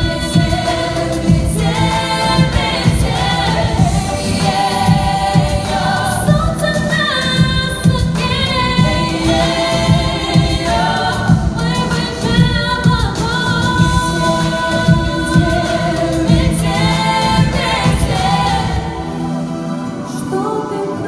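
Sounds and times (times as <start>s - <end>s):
steady beat: 0.0s - 18.9s
choir-like singing voices: 0.0s - 21.0s.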